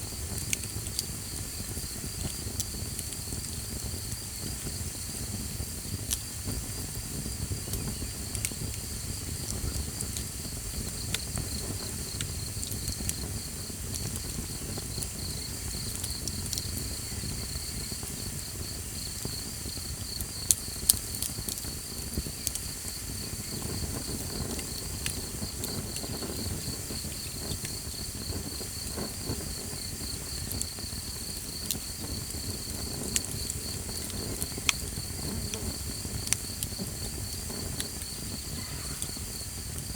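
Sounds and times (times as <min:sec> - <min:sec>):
campfire crackling and popping: 0:00.0 - 0:39.9
pulsing insect chirp: 0:06.7 - 0:39.9.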